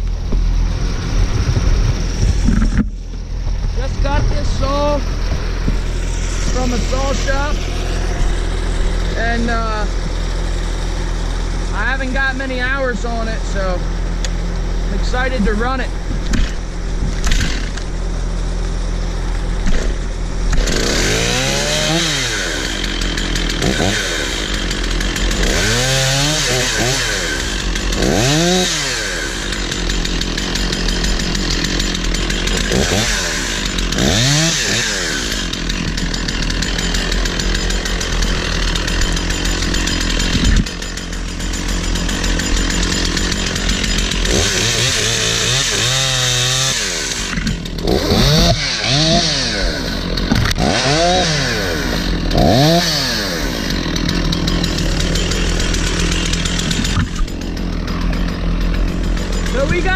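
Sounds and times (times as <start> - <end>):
chainsaw revving: 0.1 - 59.9.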